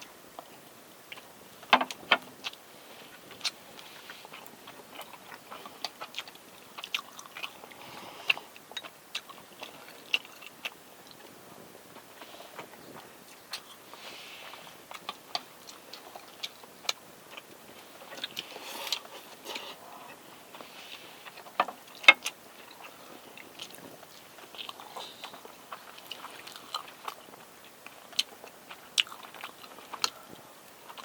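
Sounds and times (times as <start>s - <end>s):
chewing and biting: 1.1s - 31.0s.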